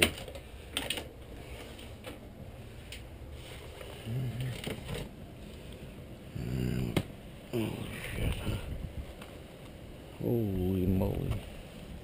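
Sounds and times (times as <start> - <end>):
person humming: 4.0 - 4.9, 6.3 - 8.8.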